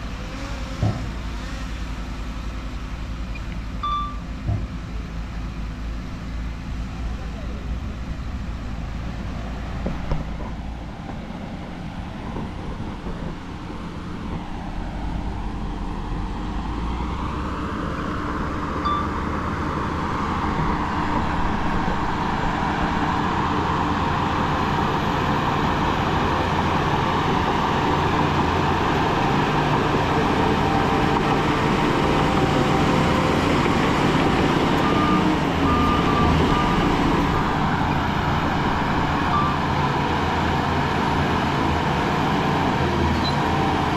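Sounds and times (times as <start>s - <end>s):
diesel earthmoving machinery running: 0.0s - 43.9s
reversing beeps: 3.4s - 4.3s, 18.8s - 19.3s, 34.7s - 38.1s, 39.2s - 39.7s, 43.1s - 43.6s.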